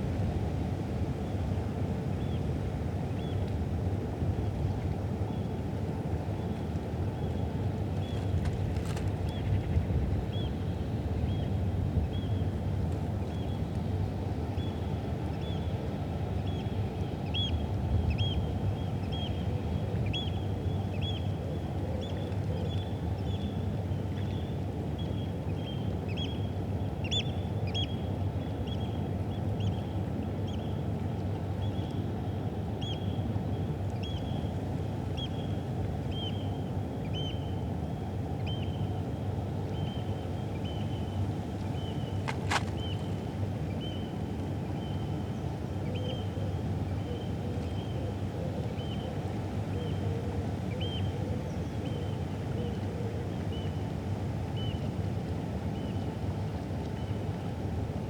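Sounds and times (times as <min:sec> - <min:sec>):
low rumble of river: 0:00.0 - 0:58.0
city background noise: 0:41.3 - 0:43.6.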